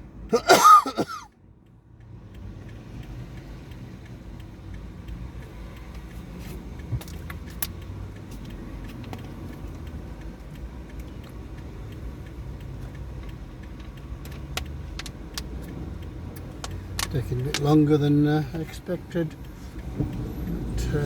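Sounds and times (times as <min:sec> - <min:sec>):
car road and engine rumble: 0:00.0 - 0:21.0
sharp clicks or rattles: 0:13.2 - 0:17.9.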